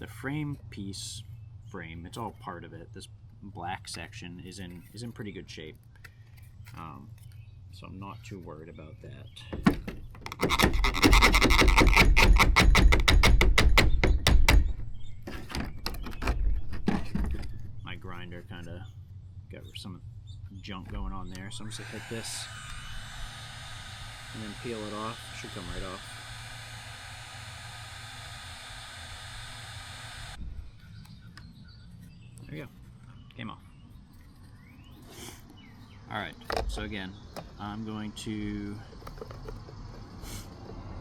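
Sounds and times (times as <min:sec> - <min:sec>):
power tool whirring: 0:10.2 - 0:13.4, 0:21.4 - 0:30.4
angle grinder clattering: 0:21.7 - 0:30.4.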